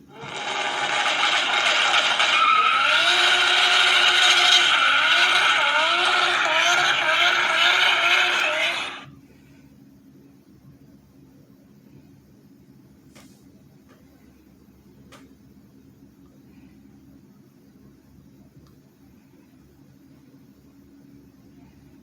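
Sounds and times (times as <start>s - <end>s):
car engine racing: 0.2s - 9.1s.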